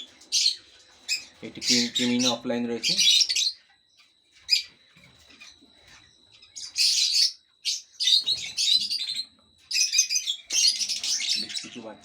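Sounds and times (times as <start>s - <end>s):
lovebirds chirping calls: 0.0s - 12.0s.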